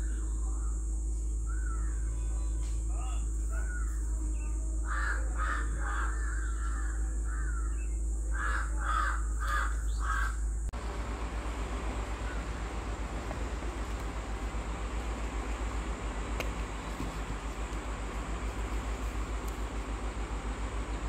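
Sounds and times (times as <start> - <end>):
bird calls: 0.0 - 21.0
steady hiss: 10.7 - 21.0.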